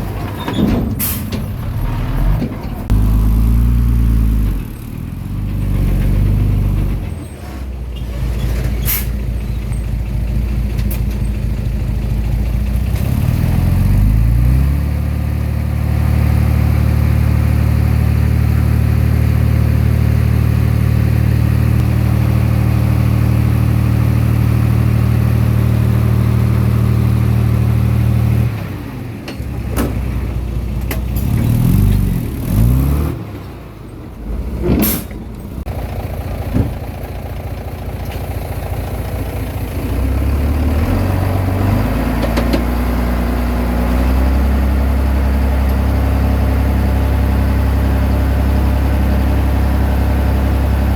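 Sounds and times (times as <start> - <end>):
bulldozer diesel engine revving: 0.0 - 50.9.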